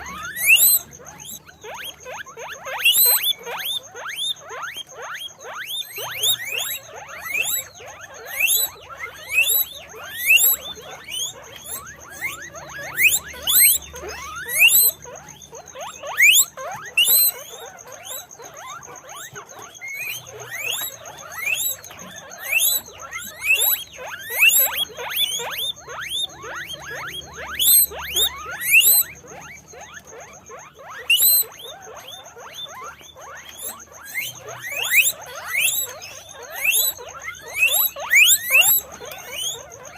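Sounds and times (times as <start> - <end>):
guinea pigs squeaking: 0.0 - 39.9.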